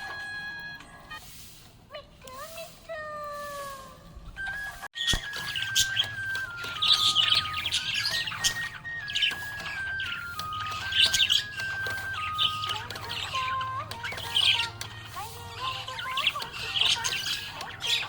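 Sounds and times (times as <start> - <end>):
budgerigars chirping and warbling: 4.2 - 18.0
instrumental melody of held notes: 4.4 - 18.0.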